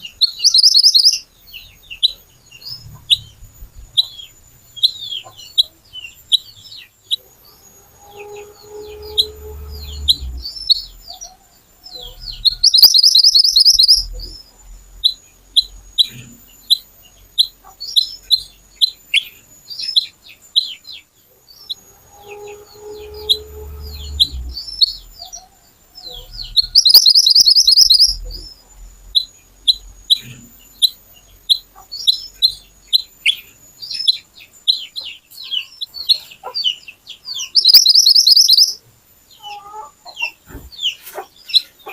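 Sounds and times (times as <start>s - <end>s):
bird chirping: 0.0s - 41.9s
faint low hum: 0.0s - 41.9s
bird rattling trill: 12.1s - 14.1s, 26.2s - 28.3s, 37.5s - 38.8s.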